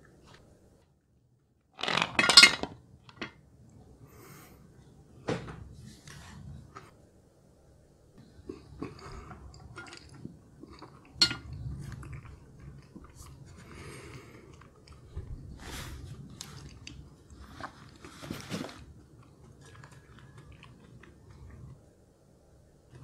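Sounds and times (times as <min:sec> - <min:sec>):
chewing noodles: 0:08.2 - 0:21.9.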